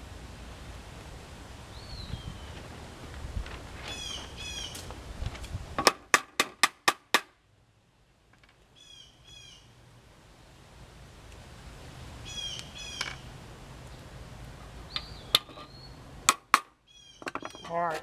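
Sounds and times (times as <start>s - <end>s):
birds chirping: 1.7s - 2.8s, 3.9s - 4.9s, 8.7s - 9.8s, 12.2s - 14.1s, 14.8s - 16.1s, 16.8s - 18.0s.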